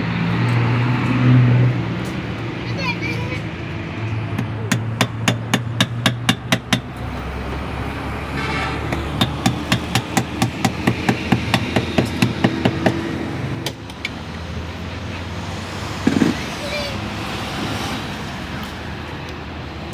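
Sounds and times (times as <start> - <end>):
sharp hammer-like knocks: 4.3 - 6.9, 8.8 - 13.9, 16.0 - 16.4.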